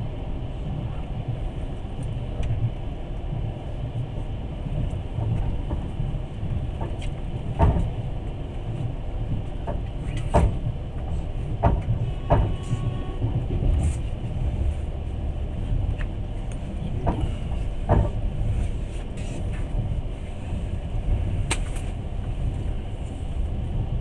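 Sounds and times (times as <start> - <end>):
train running gear rumble: 0.0 - 24.0.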